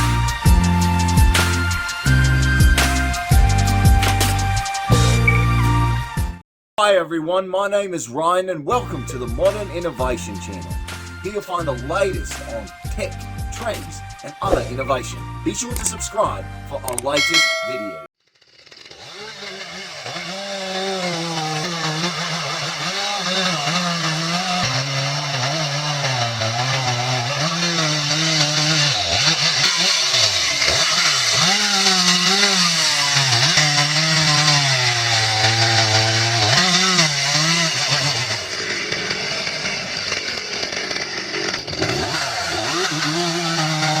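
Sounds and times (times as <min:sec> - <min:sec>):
chainsaw cutting wood: 0:00.0 - 0:05.6, 0:08.8 - 0:44.0.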